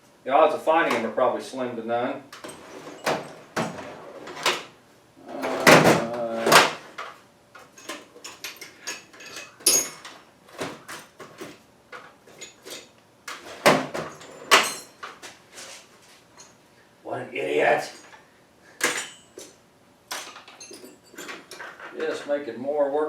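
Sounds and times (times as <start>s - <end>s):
metal tools clattering: 2.3s - 4.7s, 5.3s - 15.3s, 16.3s - 16.6s, 18.8s - 22.4s
tool drawers sliding: 2.3s - 15.9s.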